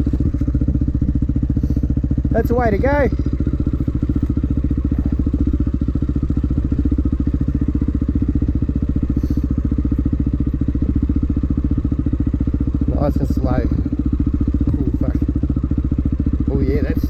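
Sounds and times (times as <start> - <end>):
dirt bike engine idling: 0.0 - 17.0.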